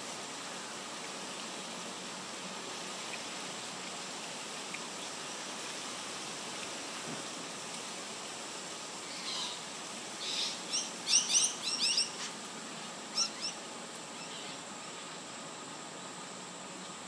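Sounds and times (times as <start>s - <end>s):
steady background hiss: 0.0s - 17.0s
bird chirping: 10.2s - 12.2s, 13.1s - 13.6s.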